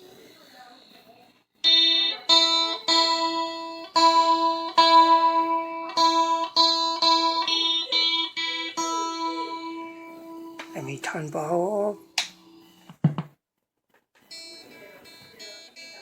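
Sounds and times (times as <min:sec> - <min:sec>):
electric guitar note picked: 0:02.3 - 0:12.7.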